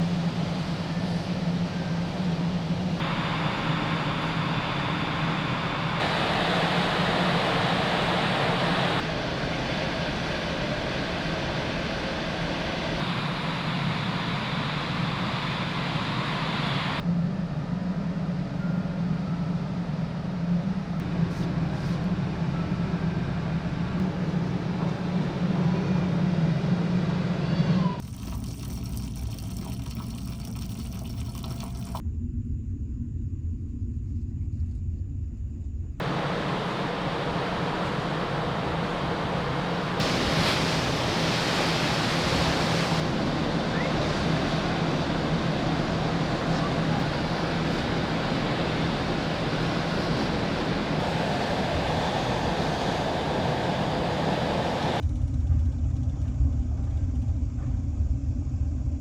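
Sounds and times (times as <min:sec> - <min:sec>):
sea noise: 0:00.0 - 0:17.0, 0:36.0 - 0:55.0
ship engine drone: 0:00.0 - 0:28.1, 0:35.6 - 0:59.0
wind: 0:00.0 - 0:59.0.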